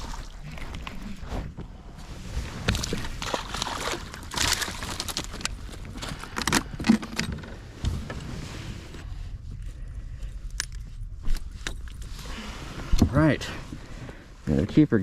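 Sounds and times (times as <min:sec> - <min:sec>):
fishing gear rattling: 0:02.6 - 0:07.7.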